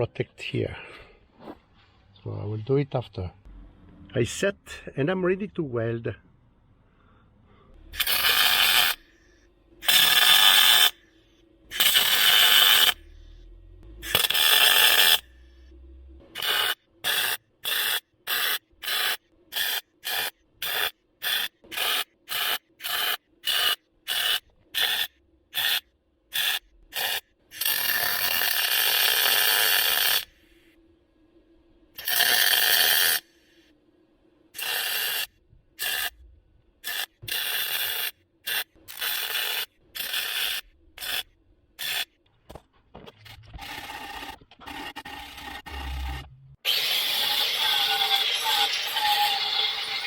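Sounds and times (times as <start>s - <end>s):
welder arcing: 8.0s - 11.0s, 11.7s - 13.1s, 14.0s - 30.4s, 32.0s - 33.6s, 34.6s - 36.2s, 36.8s - 42.2s, 43.3s - 50.0s.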